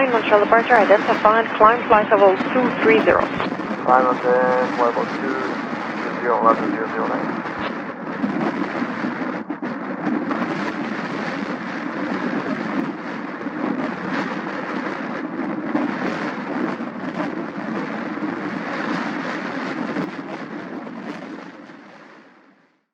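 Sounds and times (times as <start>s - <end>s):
jet airliner climbing: 0.0s - 8.6s.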